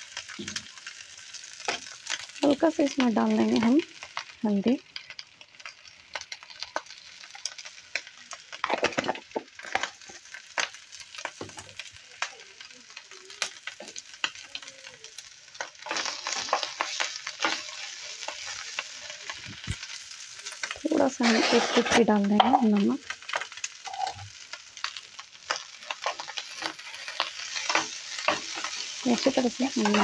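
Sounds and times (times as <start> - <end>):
potato sizzling in oil: 0.0 - 30.0
wooden spatula stirring: 21.1 - 22.5.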